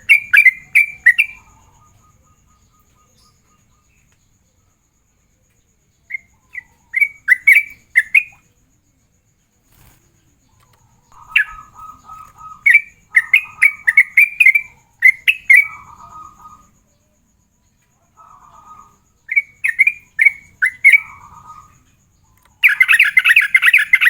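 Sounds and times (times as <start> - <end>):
bird singing bubbling notes: 11.1 - 15.8.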